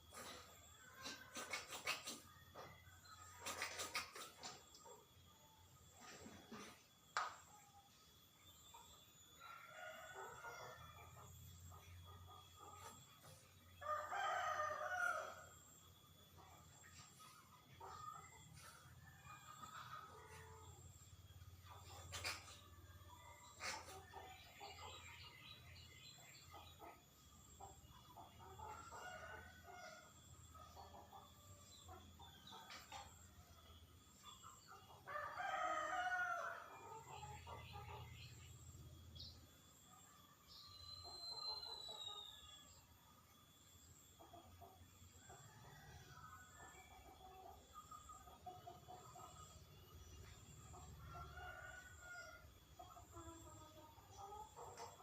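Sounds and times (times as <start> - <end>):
rooster crowing: 13.8 - 15.5.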